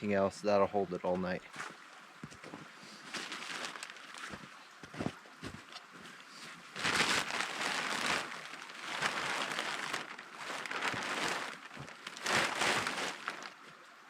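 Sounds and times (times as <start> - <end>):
plastic sheeting crinkling: 3.0 - 5.6, 6.4 - 13.7.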